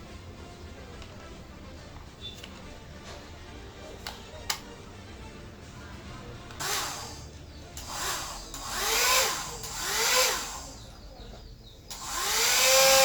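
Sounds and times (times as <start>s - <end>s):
hair dryer whining: 6.6s - 10.9s, 11.9s - 13.0s.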